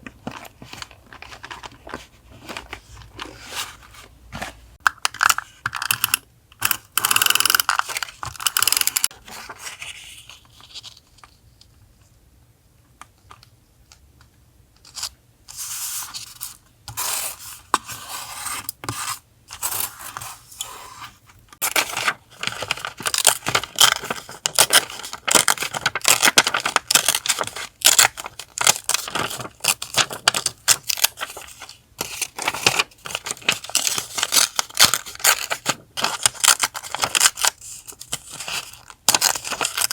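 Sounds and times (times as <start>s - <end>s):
paper rustling and tearing: 19.6s - 39.9s.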